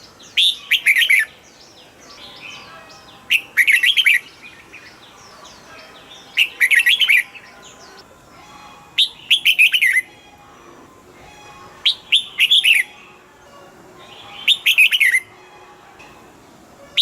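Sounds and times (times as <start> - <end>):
faint bird chirps: 0.0 - 13.2
bulbul warbled song: 0.0 - 17.0.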